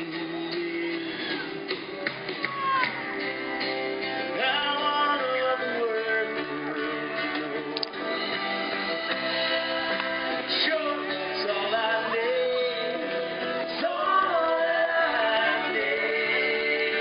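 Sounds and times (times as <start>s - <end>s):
rock guitars: 0.0s - 17.0s
person singing: 4.3s - 8.1s, 9.2s - 17.0s.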